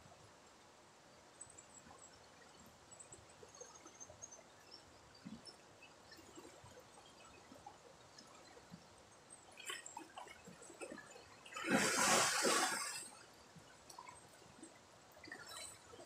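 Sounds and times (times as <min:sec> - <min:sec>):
river water splashing and gurgling: 0:01.8 - 0:16.0
loud rush of water: 0:11.6 - 0:13.0.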